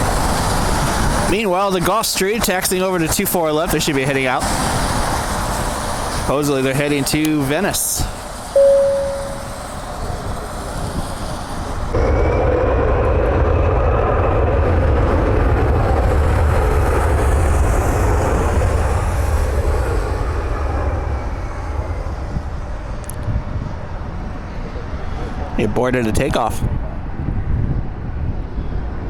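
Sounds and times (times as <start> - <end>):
jet engines rumbling with whine: 0.0 - 29.0
short ringing tone: 8.6 - 9.8.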